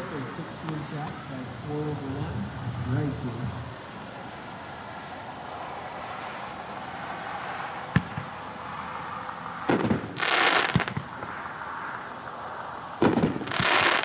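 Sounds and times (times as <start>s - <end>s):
fireworks crackling: 0.0s - 14.0s
wind noise: 2.0s - 3.9s
distant fireworks bangs: 7.8s - 8.6s, 9.6s - 11.6s, 13.0s - 14.0s.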